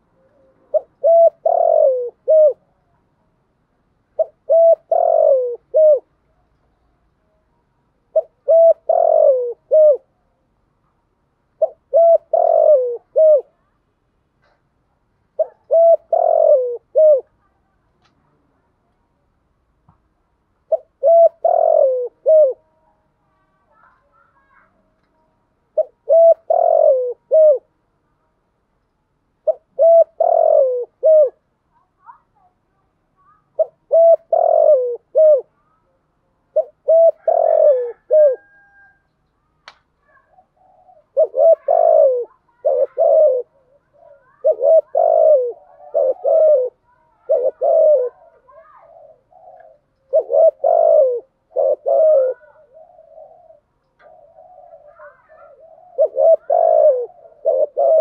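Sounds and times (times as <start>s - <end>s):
dove cooing: 0.0s - 2.8s, 4.2s - 6.1s, 8.1s - 10.1s, 11.6s - 13.6s, 15.4s - 17.4s, 20.6s - 22.9s, 25.7s - 27.7s, 29.4s - 31.4s, 33.3s - 35.8s, 36.5s - 39.1s, 40.0s - 58.0s.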